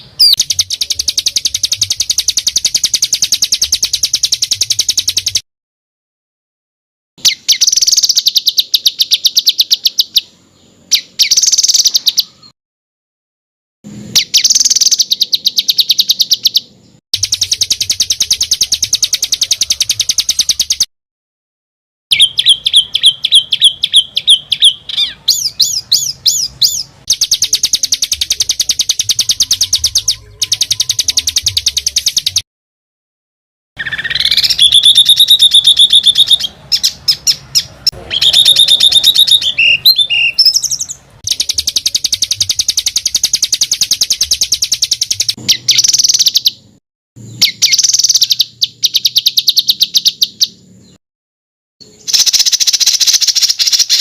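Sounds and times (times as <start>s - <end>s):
songbird fast trills and chirps: 0.0s - 5.4s, 7.2s - 12.5s, 14.1s - 20.9s, 22.1s - 32.4s, 33.8s - 51.0s, 51.8s - 54.0s
rising whistled bird sweeps: 33.8s - 44.2s.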